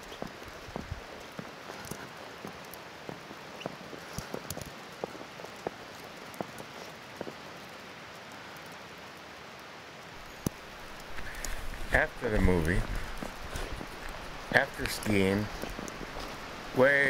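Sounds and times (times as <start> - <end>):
road noise hiss: 0.0 - 17.0
wet snow ticking on windshield: 10.2 - 17.0.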